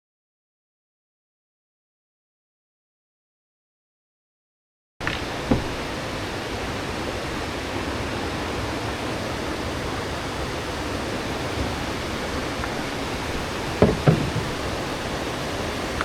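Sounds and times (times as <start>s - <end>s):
water rushing: 5.0s - 16.0s.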